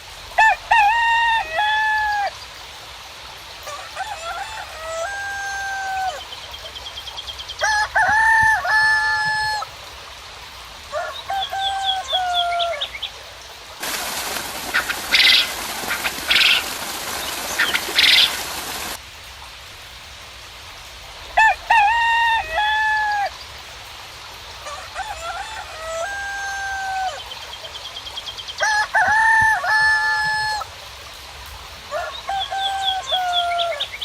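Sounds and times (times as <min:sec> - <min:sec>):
steady hiss: 0:00.0 - 0:34.0
roosters crowing: 0:00.4 - 0:02.4, 0:03.6 - 0:06.3, 0:07.6 - 0:09.7, 0:10.9 - 0:13.0, 0:13.8 - 0:19.0, 0:21.4 - 0:23.4, 0:24.6 - 0:27.3, 0:28.6 - 0:30.7, 0:31.9 - 0:34.0
small birds chirping: 0:11.6 - 0:19.0.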